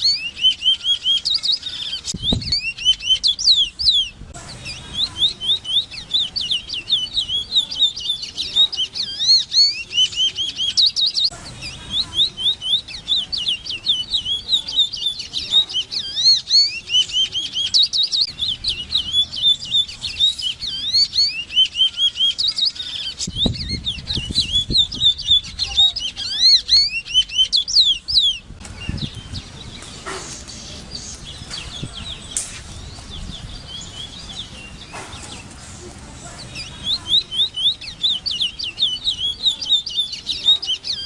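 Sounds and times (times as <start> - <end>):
bird singing whistles and trills: 0.0 - 35.5, 36.4 - 41.0.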